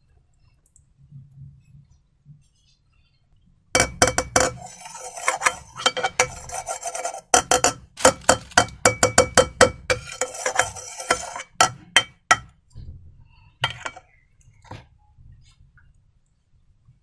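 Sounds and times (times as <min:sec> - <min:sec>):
utensil clinking against glass bowl: 0:03.8 - 0:12.5, 0:13.6 - 0:14.0.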